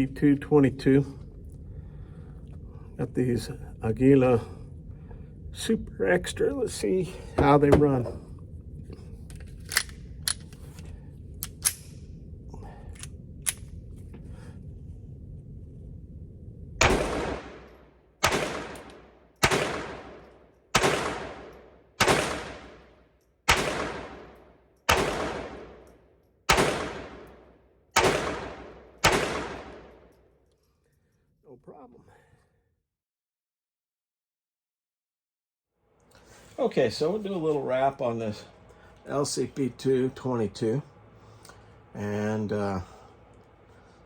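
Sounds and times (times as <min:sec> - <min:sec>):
pistol shots: 0:16.8 - 0:25.9, 0:26.5 - 0:30.1.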